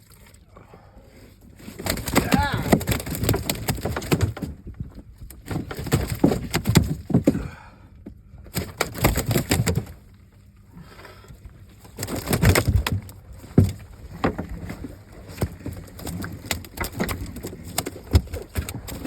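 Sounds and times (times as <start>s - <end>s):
rapid knocking and clattering: 1.9s - 4.5s.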